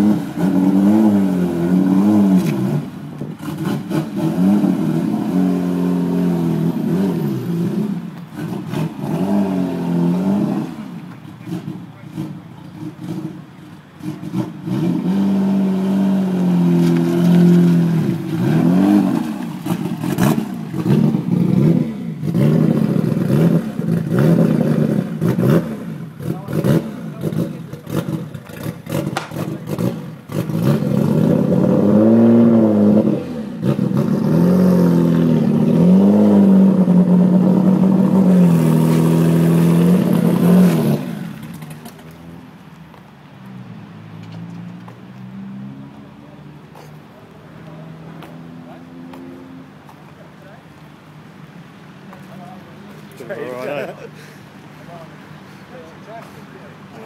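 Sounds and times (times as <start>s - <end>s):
racing car engine revving: 0.0s - 42.4s.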